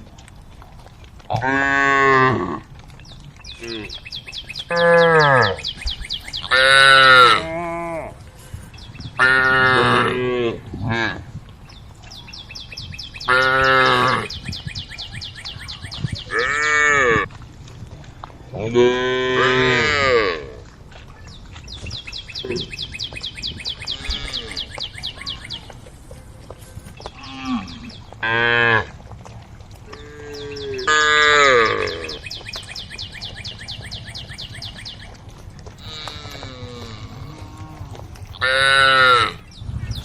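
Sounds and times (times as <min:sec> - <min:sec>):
cows mooing: 0:01.3 - 0:02.7, 0:04.6 - 0:05.7, 0:06.4 - 0:08.2, 0:09.2 - 0:11.3, 0:13.2 - 0:14.4, 0:16.3 - 0:17.3, 0:18.6 - 0:20.7, 0:23.8 - 0:24.8, 0:27.1 - 0:29.0, 0:29.9 - 0:32.3, 0:35.8 - 0:39.5.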